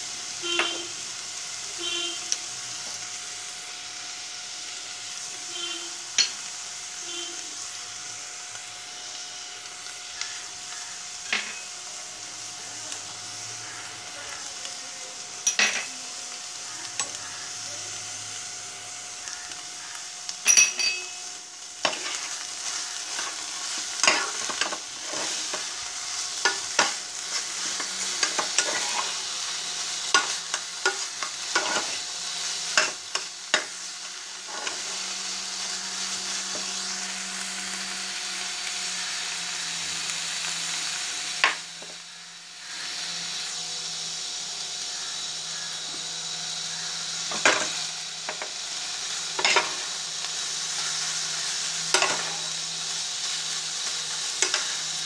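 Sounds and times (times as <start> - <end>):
food sizzling in a pan: 0.0 - 55.0
metal spoon scraping a pan: 21.8 - 36.8, 49.4 - 49.9, 51.9 - 52.6, 53.8 - 54.9.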